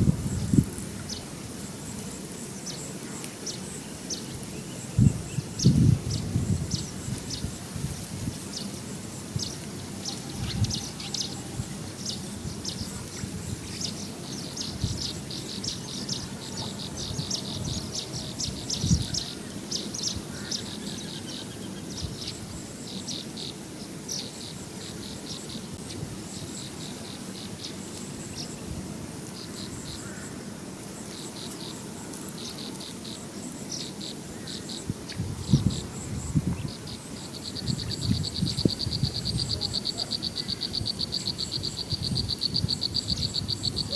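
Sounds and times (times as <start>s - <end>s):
insects chirping: 0.0s - 43.9s.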